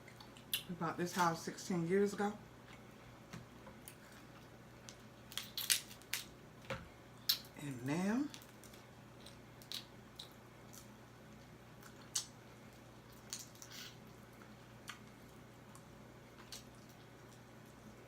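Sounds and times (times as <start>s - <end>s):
chewing crab legs: 8.3s - 18.0s.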